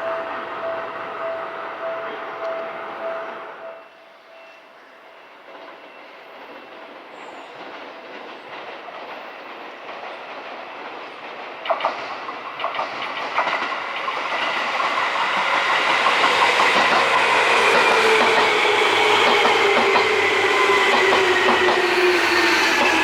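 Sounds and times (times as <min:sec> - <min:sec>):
train whine falling in pitch: 0:00.0 - 0:04.4, 0:13.6 - 0:23.0
train wheels clacking on rail joints: 0:05.5 - 0:23.0.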